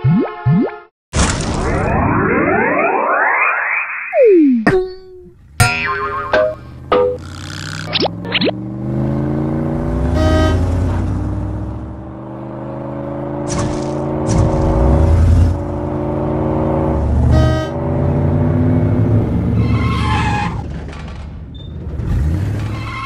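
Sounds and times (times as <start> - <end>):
cartoon toy car engine hum: 5.9 - 8.6.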